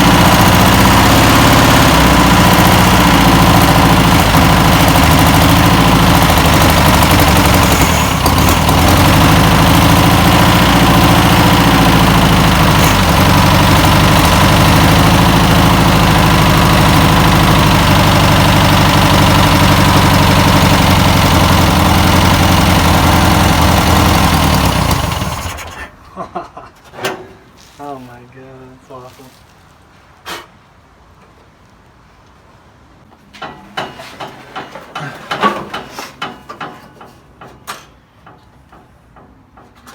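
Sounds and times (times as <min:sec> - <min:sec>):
air-cooled engine running: 0:00.0 - 0:25.8.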